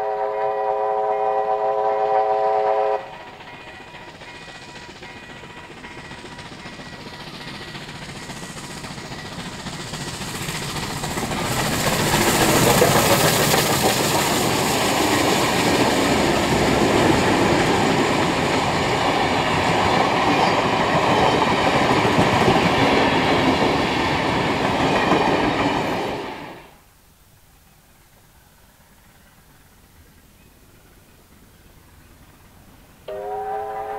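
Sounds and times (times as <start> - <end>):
train passing: 0.0 - 26.9, 27.6 - 33.9.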